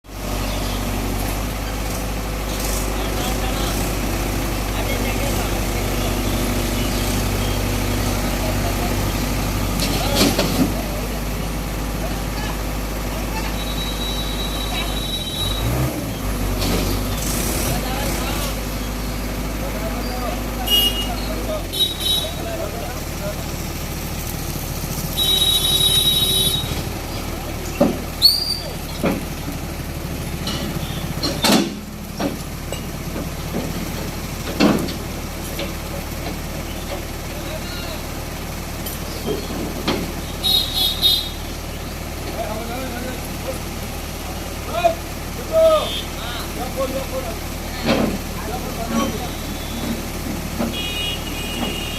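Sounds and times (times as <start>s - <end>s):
diesel engine running: 0.0s - 51.9s
short high squeal: 28.2s - 28.8s.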